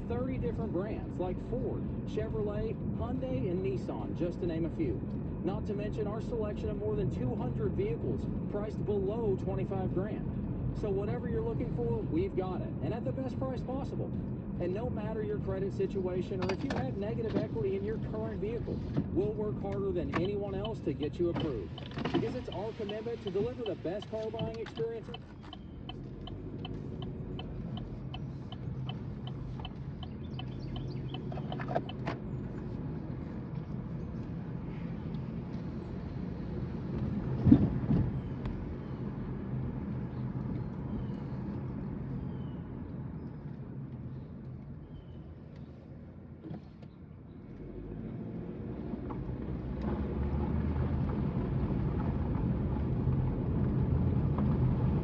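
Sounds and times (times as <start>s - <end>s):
engine and road noise hum: 0.0s - 55.0s
quick regular ticking: 21.4s - 32.0s.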